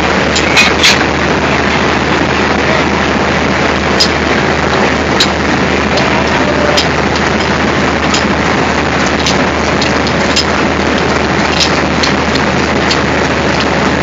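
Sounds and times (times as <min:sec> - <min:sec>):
diesel locomotive engine idling: 0:00.0 - 0:14.0
sharp clicks: 0:09.0 - 0:13.8.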